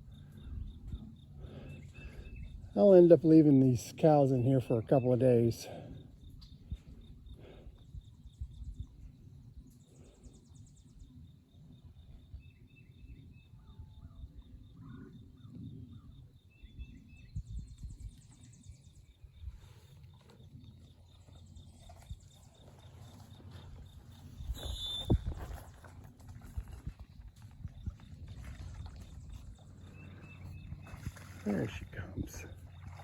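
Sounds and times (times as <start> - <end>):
birds chirping: 0.0 - 11.1, 28.8 - 33.0.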